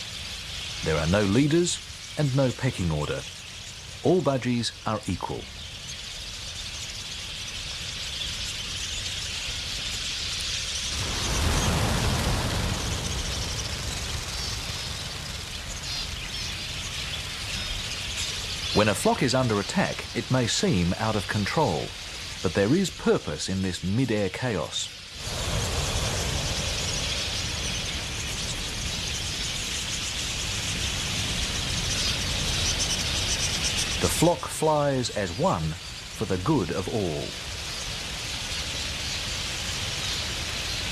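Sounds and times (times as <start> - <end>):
budgerigars chattering and chirping: 0.0 - 40.9
low rushing noise: 10.6 - 17.5, 24.1 - 38.1.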